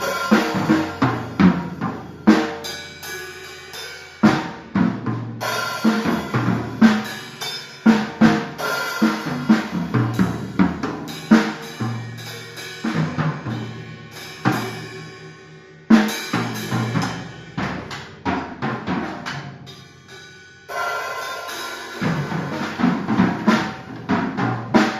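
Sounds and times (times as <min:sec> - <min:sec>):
drum kit playing: 0:00.0 - 0:24.9.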